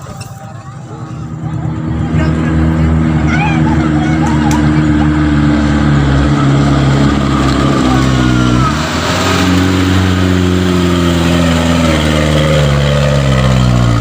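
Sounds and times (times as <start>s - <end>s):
diesel truck engine straining: 0.0s - 14.0s.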